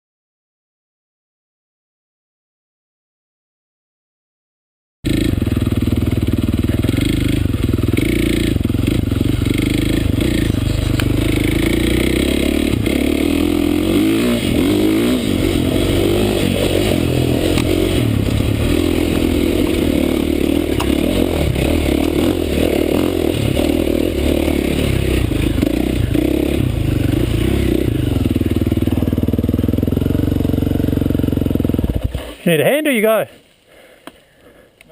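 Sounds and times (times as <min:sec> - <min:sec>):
dirt bike engine revving: 0:05.1 - 0:32.4.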